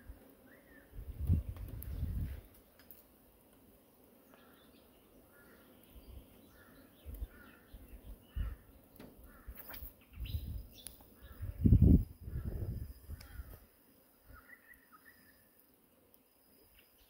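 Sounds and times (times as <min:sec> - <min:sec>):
birds calling: 0:03.9 - 0:15.6.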